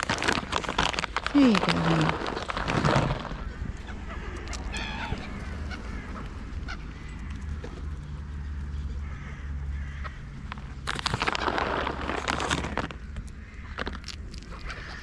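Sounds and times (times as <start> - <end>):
low rumble: 1.2 - 15.0
harsh bird calls: 3.0 - 15.0.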